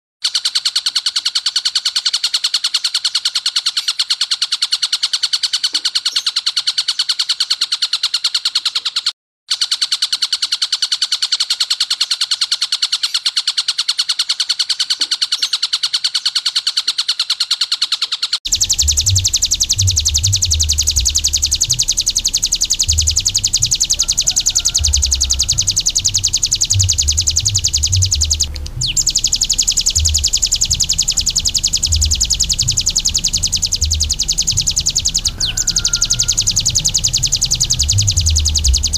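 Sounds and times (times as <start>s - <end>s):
bird rattling trill: 0.2s - 38.9s
low background rumble: 18.5s - 38.9s.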